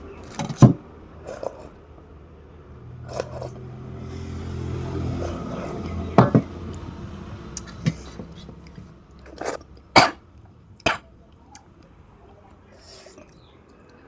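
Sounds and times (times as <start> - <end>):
person coughing: 9.4 - 10.2.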